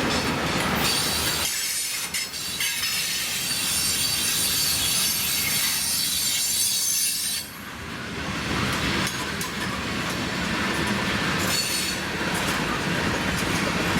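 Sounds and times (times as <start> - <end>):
freight train rolling rumble: 0.0 - 13.9
wheels clicking over rail joints: 8.6 - 13.9.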